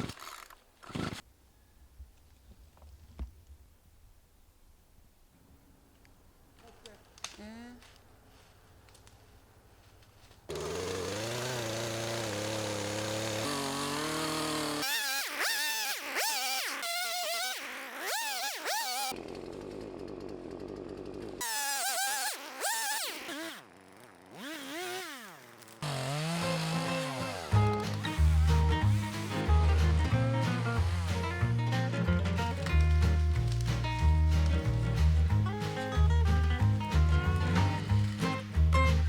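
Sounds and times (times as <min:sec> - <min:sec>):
chainsaw cutting wood: 0:00.0 - 0:01.2, 0:10.5 - 0:39.0.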